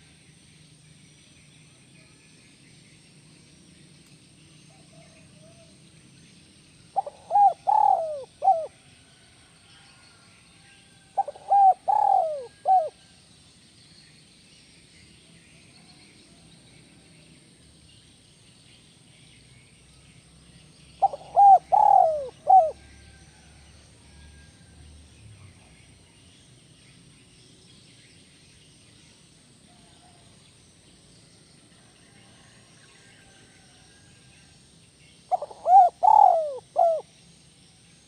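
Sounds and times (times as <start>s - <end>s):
dove cooing: 7.0s - 8.8s, 11.1s - 13.0s, 21.0s - 22.9s, 35.3s - 37.1s.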